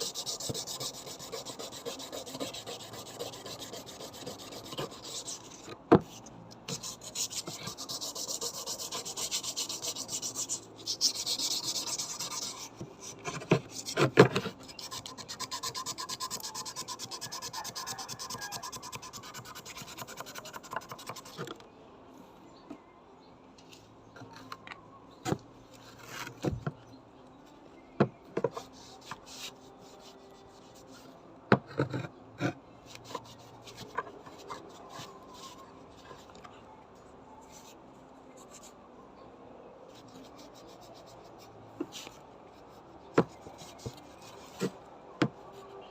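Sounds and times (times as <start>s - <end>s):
filing on metal scabbard: 0.0s - 21.4s.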